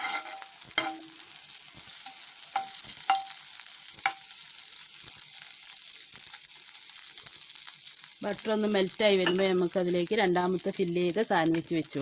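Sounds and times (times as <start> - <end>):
butter sizzling in a frying pan: 0.0 - 12.0
utensil tapping a pan: 2.0 - 4.3, 9.2 - 9.6.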